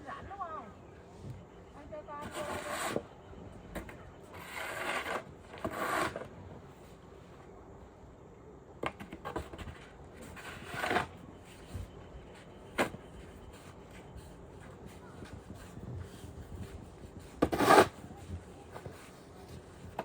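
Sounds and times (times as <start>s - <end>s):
shovel scraping snow: 2.2s - 3.0s, 4.4s - 6.3s, 10.2s - 11.1s, 17.2s - 18.2s.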